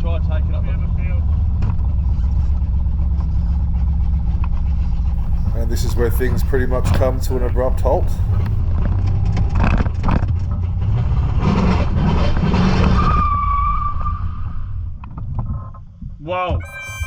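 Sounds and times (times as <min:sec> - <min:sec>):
car driving on road: 0:05.2 - 0:08.6
tyre squeal: 0:16.6 - 0:17.0.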